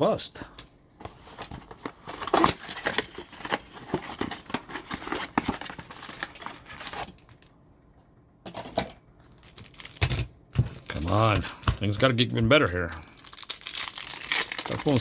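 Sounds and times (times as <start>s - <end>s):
plastic wrapper crinkling and tearing: 1.8s - 7.5s, 9.2s - 10.2s, 12.7s - 15.0s.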